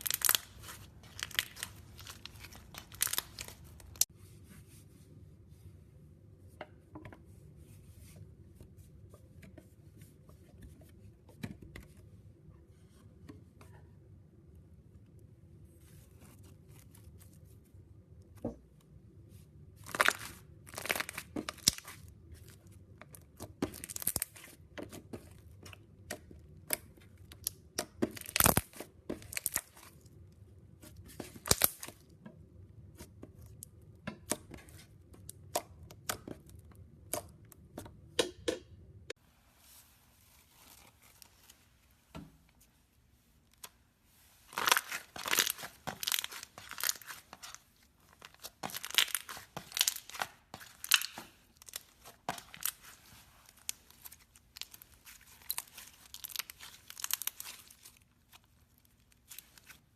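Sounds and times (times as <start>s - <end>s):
slime squishing and crackling: 0.0s - 4.1s, 19.8s - 32.1s, 44.5s - 59.9s.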